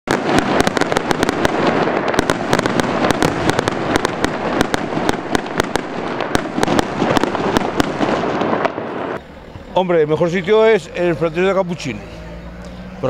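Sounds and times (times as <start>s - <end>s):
fireworks cracking and popping: 0.1s - 9.2s
fireworks hissing: 0.1s - 11.2s.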